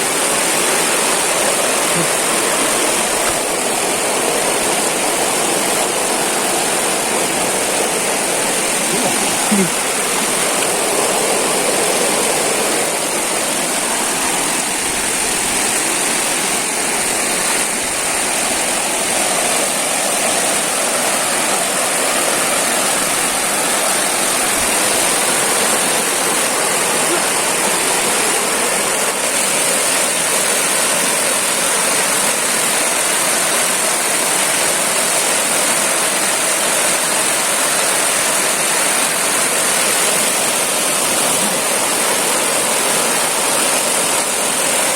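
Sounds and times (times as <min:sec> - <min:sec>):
waterfall roaring: 0:00.0 - 0:44.9.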